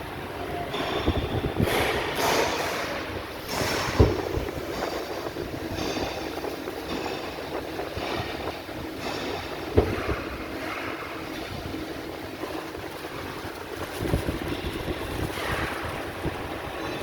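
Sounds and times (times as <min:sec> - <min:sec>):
sharp knocks: 0:00.8 - 0:11.0
steady rushing noise: 0:01.0 - 0:17.0.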